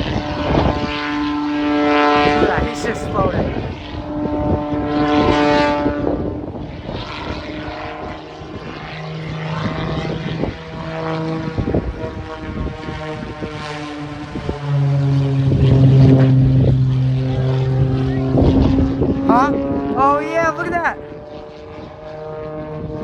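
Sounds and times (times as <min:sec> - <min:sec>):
propeller plane engine: 0:00.0 - 0:23.0.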